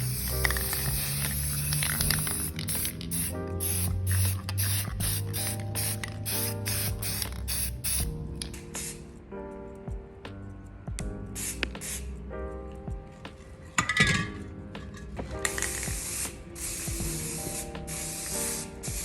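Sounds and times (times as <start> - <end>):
spray paint hissing: 0.0 - 9.1, 11.3 - 12.1, 15.4 - 19.0
background music with a beat: 3.2 - 19.0.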